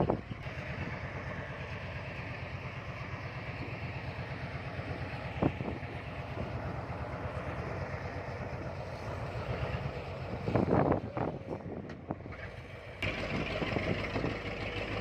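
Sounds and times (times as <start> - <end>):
diesel engine throbbing: 0.0 - 15.0.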